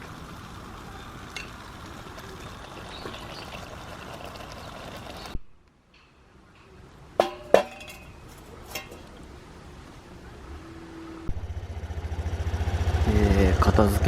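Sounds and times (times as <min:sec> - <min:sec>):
motorcycle engine idling: 0:11.3 - 0:14.0.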